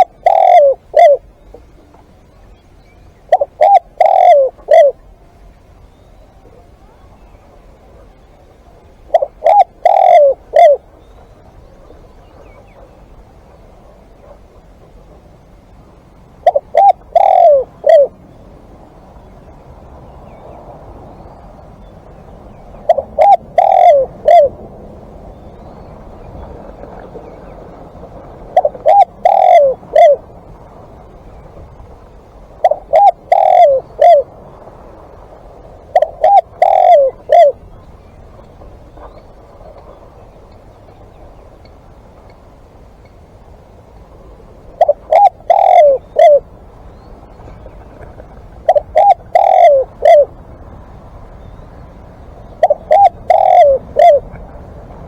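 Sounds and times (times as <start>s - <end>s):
dove cooing: 0.0s - 2.2s, 3.1s - 5.6s, 6.2s - 15.3s, 15.9s - 18.3s, 22.1s - 24.7s, 25.3s - 30.6s, 32.2s - 34.4s, 35.8s - 40.0s, 44.7s - 46.6s, 47.4s - 50.6s, 51.4s - 55.0s.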